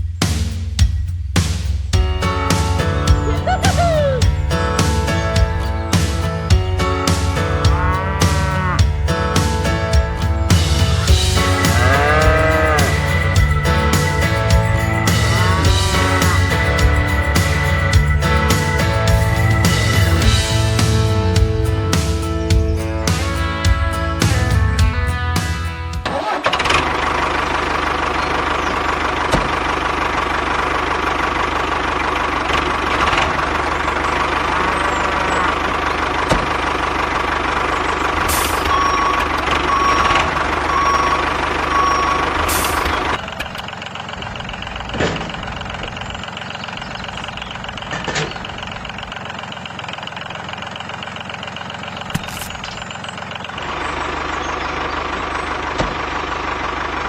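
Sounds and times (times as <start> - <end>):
tractor engine idling: 2.0 - 57.0
short reversing beeps: 38.5 - 43.3.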